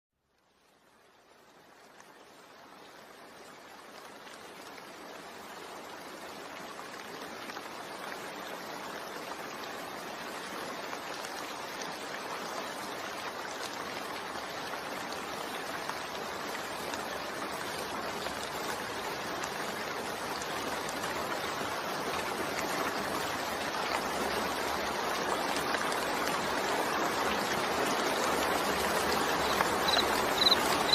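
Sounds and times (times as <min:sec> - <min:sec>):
heavy rain falling: 0:13.8 - 0:30.9.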